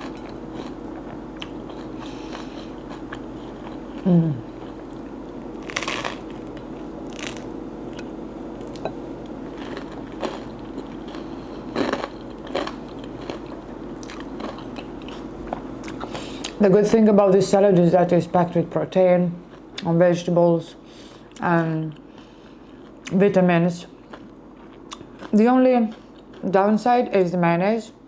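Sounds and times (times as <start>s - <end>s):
low hum falling in pitch: 0.0s - 16.0s
bread crunching being chewed: 0.0s - 16.6s, 21.1s - 23.2s, 23.9s - 26.5s.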